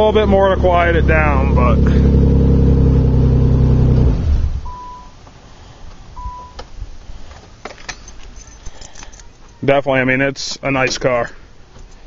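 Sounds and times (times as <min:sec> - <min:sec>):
car engine idling: 0:00.0 - 0:06.6
warning chime beeps: 0:04.7 - 0:05.2, 0:06.2 - 0:06.6.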